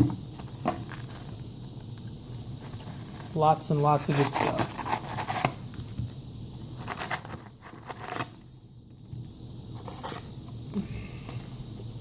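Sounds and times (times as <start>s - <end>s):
packaging rustling and crinkling: 0.3s - 1.6s, 2.4s - 8.4s.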